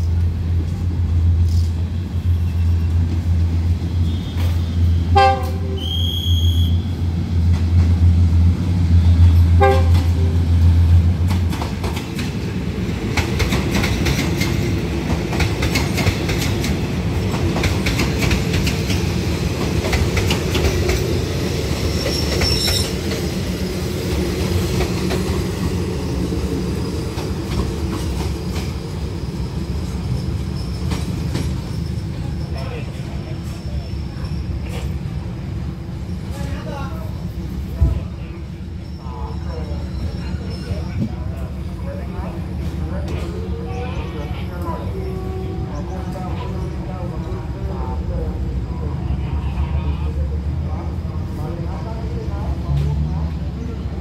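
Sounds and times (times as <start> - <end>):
train horn toots: 3.9 - 6.8, 9.6 - 10.3, 44.9 - 45.9
high wheel squeal: 5.8 - 7.0, 21.9 - 23.0, 28.4 - 32.7, 38.6 - 41.0.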